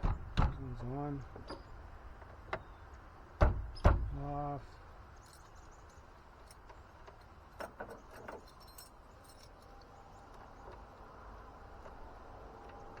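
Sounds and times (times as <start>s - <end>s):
light metallic jingling: 5.1s - 10.0s.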